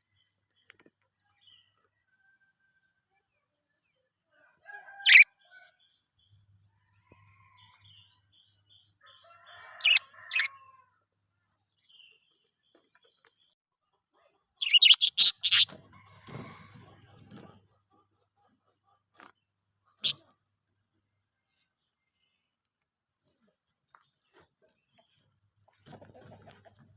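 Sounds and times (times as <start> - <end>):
budgies chirping: 9.7 - 10.5, 14.6 - 15.8, 20.0 - 20.3
soft bird chattering: 14.6 - 15.7, 19.9 - 20.3.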